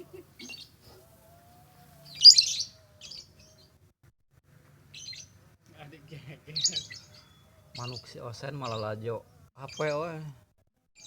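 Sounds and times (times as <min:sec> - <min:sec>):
bird chirping: 0:00.0 - 0:03.8, 0:04.9 - 0:10.2.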